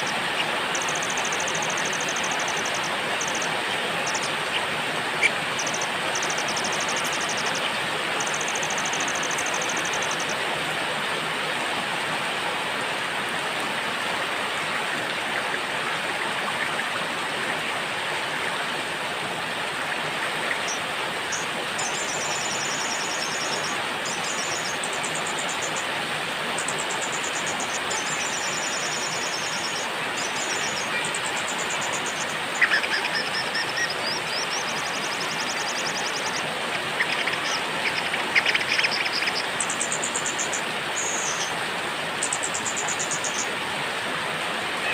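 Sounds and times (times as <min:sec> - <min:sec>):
songbirds trilling: 0:00.0 - 0:10.5, 0:20.0 - 0:25.9, 0:26.5 - 0:41.6
steady rain: 0:00.0 - 0:44.9.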